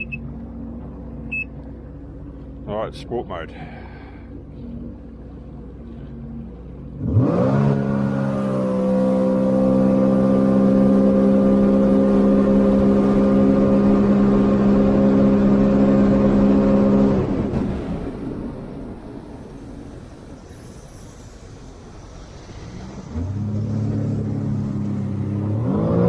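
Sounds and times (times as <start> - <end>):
jet ski engine revving: 4.6 - 19.1, 21.9 - 26.0.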